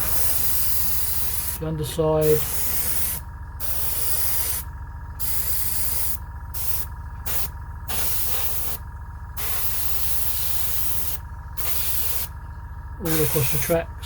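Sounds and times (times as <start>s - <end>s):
steady low hum: 0.0s - 14.0s
airbrush spraying in hissing bursts: 2.2s - 4.6s, 5.2s - 8.8s, 9.4s - 12.3s, 13.1s - 13.7s.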